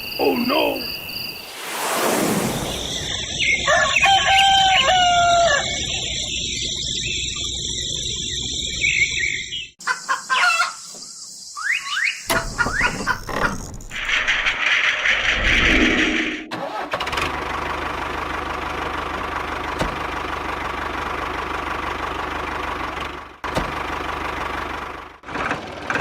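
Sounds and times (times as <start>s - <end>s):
short rising bird calls: 0.0s - 6.2s
rooster crowing: 3.4s - 5.9s.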